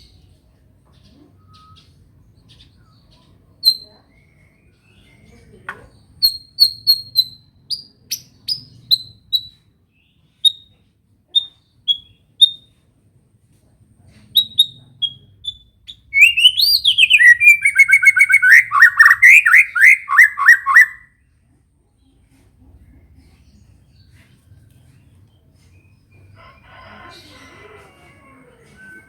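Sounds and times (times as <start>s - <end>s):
high bird chirps: 0.9s - 5.4s, 6.2s - 10.7s, 11.4s - 12.7s, 14.4s - 21.1s
fast bird trill: 14.4s - 21.0s
bird singing: 14.4s - 21.1s.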